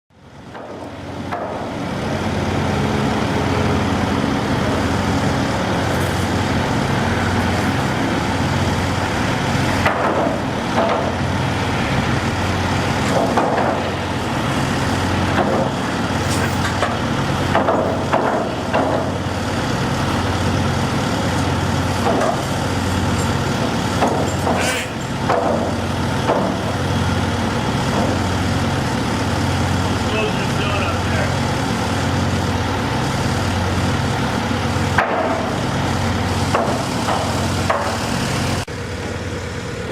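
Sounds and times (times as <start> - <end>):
diesel engine running: 0.1 - 39.9
sharp clanks and knocks: 0.5 - 1.7, 9.8 - 11.2, 13.0 - 14.0, 14.8 - 19.2, 22.0 - 26.8, 34.9 - 35.6, 36.5 - 38.2.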